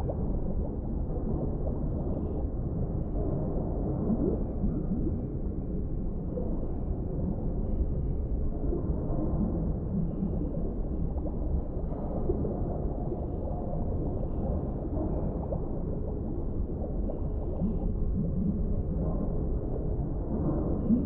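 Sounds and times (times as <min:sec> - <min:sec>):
deep underwater rumble: 0:00.0 - 0:21.0
gurgling and bubbling: 0:00.0 - 0:21.0.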